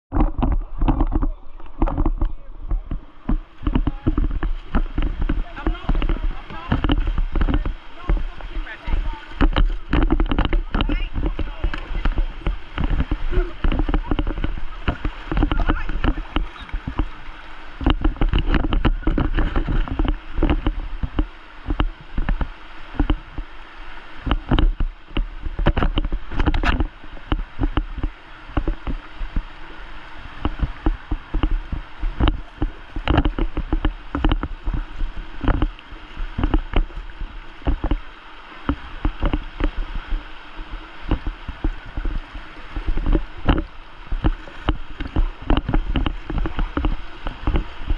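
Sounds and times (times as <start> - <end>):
kayak knocks and bumps: 0.1 - 47.9
paddle splashing water: 0.1 - 47.9.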